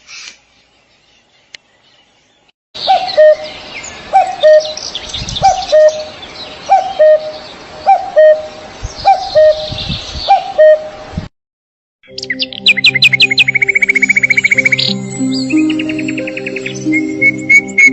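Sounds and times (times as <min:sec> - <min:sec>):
small birds chirping: 0:00.0 - 0:10.9, 0:12.0 - 0:17.9
low two-part bird call: 0:05.4 - 0:06.1, 0:06.7 - 0:09.7, 0:10.3 - 0:10.9.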